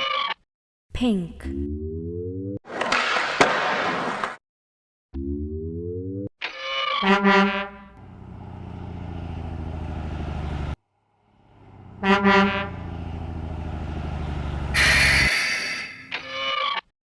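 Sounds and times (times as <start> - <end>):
garbage truck horn honking: 7.0 - 8.0, 11.6 - 13.2, 14.6 - 15.3
truck engine pulsing rumble: 8.0 - 15.3.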